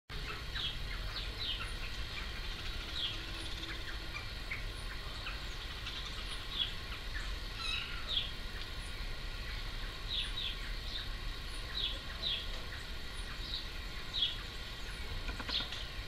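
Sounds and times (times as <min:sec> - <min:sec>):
birds chirping: 0:00.1 - 0:16.0
low steady rumble: 0:00.1 - 0:16.0.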